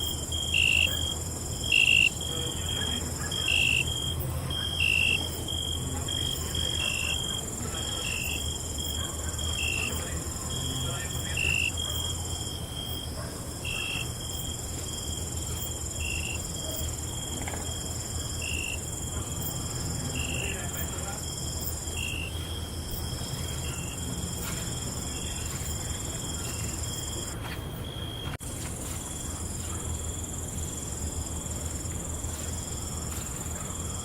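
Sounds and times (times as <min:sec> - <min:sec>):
insect trill: 0:00.0 - 0:28.2
crickets chirping: 0:00.0 - 0:34.0.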